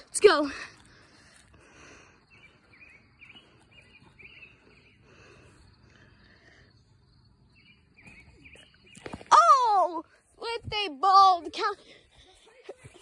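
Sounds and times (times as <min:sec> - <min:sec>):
faint bird chirps: 0:02.2 - 0:09.5.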